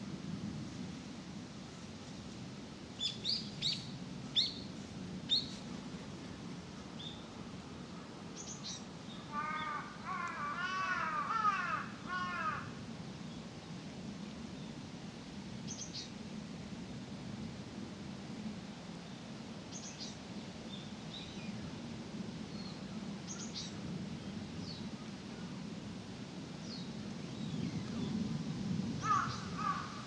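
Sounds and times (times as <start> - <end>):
crow cawing: 9.3 - 12.7, 29.0 - 30.0.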